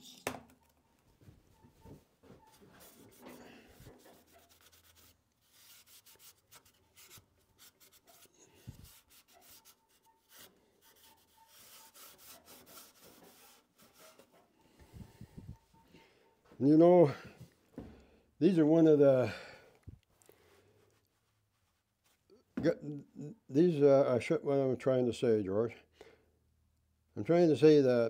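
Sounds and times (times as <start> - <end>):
faint rubbing and scraping: 1.2 - 16.4.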